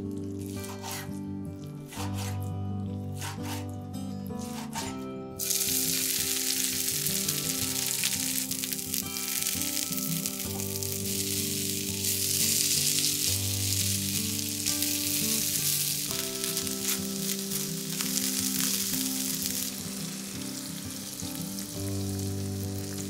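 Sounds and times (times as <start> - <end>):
soft background music: 0.0 - 23.0
meat sizzling in a wok: 5.4 - 23.0.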